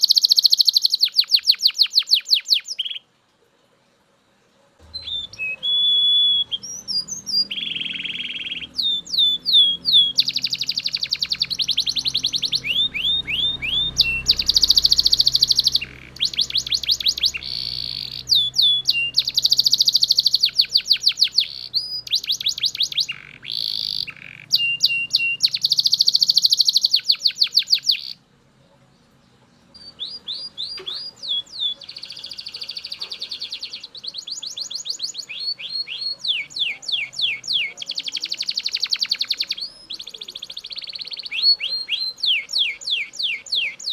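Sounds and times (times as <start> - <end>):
canary singing trills: 0.0 - 3.1, 4.8 - 43.9.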